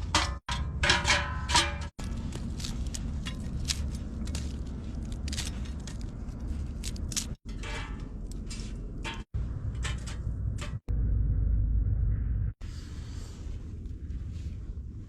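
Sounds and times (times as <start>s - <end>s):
short crunches and scrapes: 0.0s - 10.9s
wind rumble on microphone: 8.2s - 15.0s.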